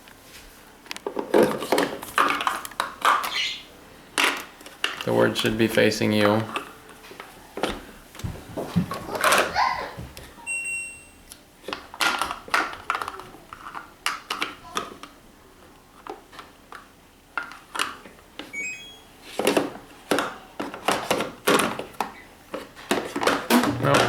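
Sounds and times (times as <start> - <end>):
short high beep: 18.6 - 19.1
short high tones: 18.6 - 19.1.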